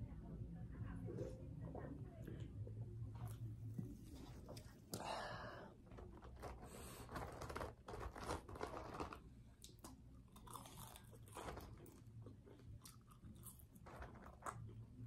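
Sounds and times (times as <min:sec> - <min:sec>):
aluminium foil crinkling: 0:06.2 - 0:09.3
person chewing and biting: 0:09.6 - 0:14.7.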